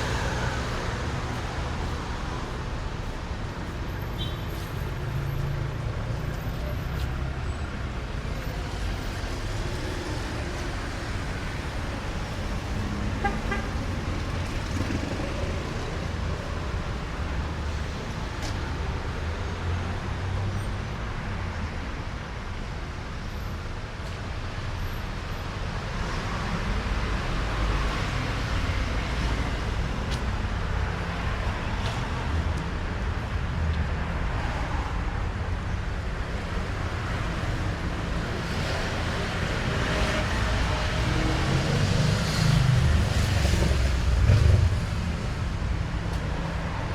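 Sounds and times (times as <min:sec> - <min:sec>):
cars passing: 0:00.0 - 0:21.6, 0:24.8 - 0:46.9.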